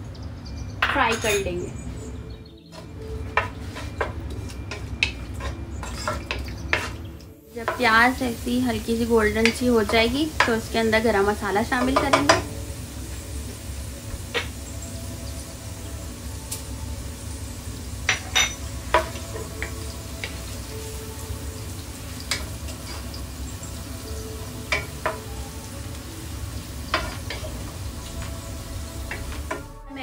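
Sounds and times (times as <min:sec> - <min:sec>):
spatula tapping and scraping pan: 0:02.7 - 0:08.0, 0:09.3 - 0:10.7, 0:11.6 - 0:12.6, 0:18.1 - 0:20.4, 0:24.7 - 0:25.3, 0:26.9 - 0:27.6
onions sizzling in hot oil: 0:02.7 - 0:30.0.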